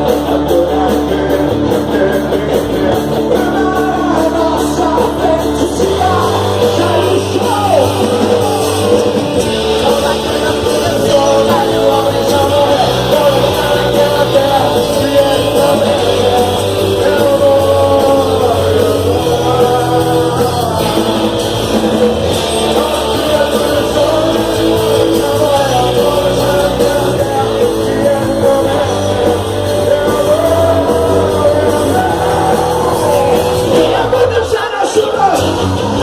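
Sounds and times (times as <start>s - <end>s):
rock band playing: 0.0s - 36.0s
person singing worship song: 9.5s - 21.4s.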